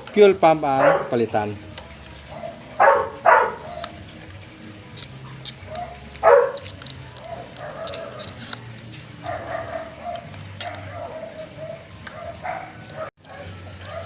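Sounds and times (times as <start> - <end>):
dog barking: 0.8 - 1.2, 2.3 - 3.7, 5.7 - 6.6, 7.2 - 8.2, 9.2 - 14.0
dog whining: 9.3 - 14.0.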